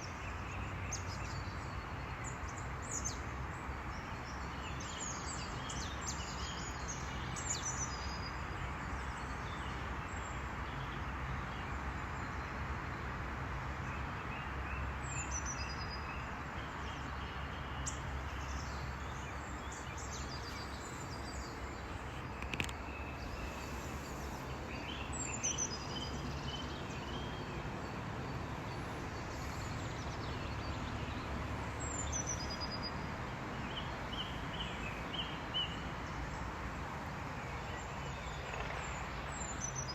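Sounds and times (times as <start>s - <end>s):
outdoor background noise: 0.0s - 39.9s
birds chirping: 16.9s - 32.8s.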